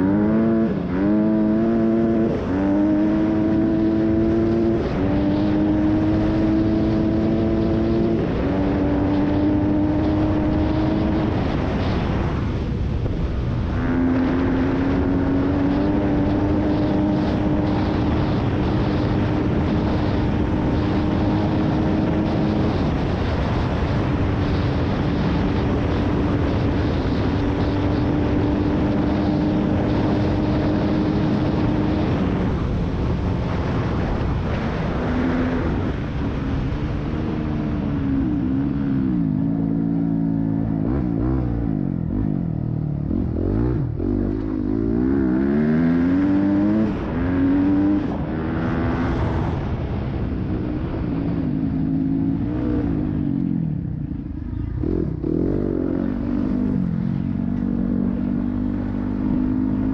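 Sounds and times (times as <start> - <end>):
wind rush: 0.0 - 59.9.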